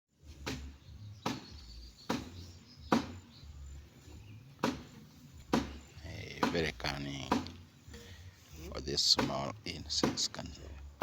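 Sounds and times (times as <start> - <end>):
sharp knocks: 0.4 - 3.2, 4.6 - 7.6, 9.1 - 10.4.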